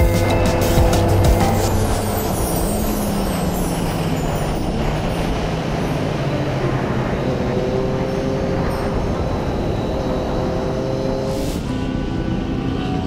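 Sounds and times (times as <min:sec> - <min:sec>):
motorcycle engine: 0:00.0 - 0:13.0
wind buffeting microphone: 0:00.0 - 0:13.0.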